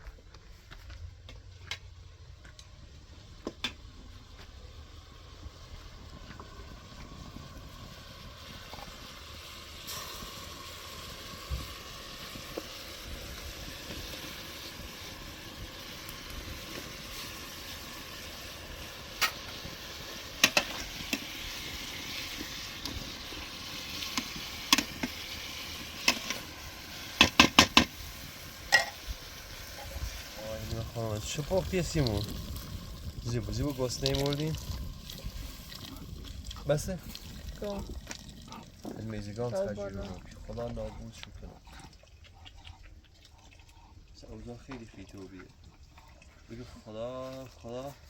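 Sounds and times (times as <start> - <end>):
food sizzling: 3.7 - 40.2.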